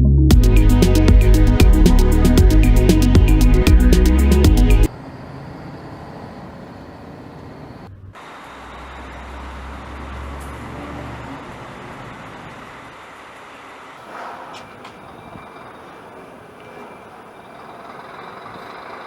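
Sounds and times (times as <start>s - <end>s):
deep engine rumble: 0.0s - 4.9s
music: 0.0s - 4.9s
heavy machinery running: 0.3s - 19.0s.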